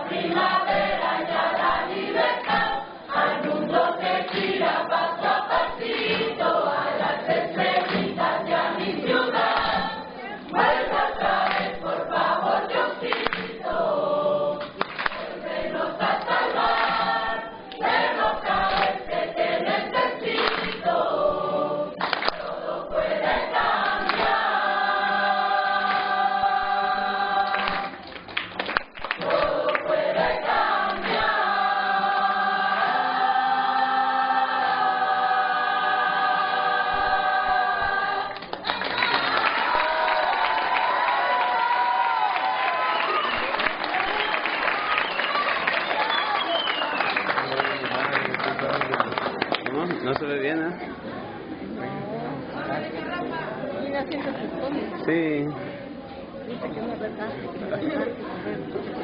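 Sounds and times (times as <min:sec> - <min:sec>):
choir singing: 0:00.0 - 0:28.1, 0:29.1 - 0:43.0.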